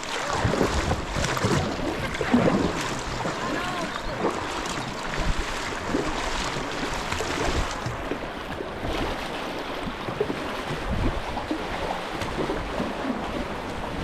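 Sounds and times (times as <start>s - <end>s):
river current rushing: 0.0s - 9.8s.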